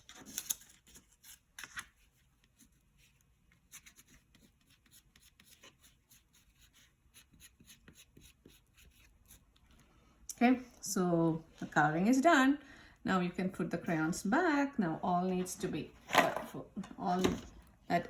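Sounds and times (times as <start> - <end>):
crayon scratching on paper: 2.1 - 9.6.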